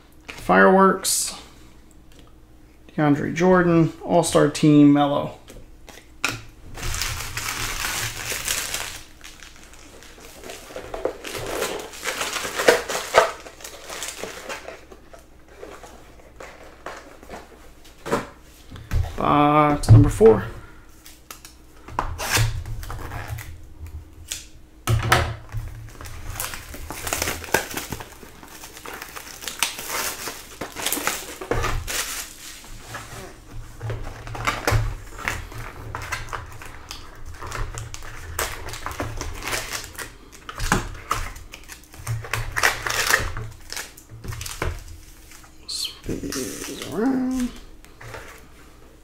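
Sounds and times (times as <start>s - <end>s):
plastic wrap crinkling and tearing: 6.8s - 17.5s, 25.7s - 47.7s.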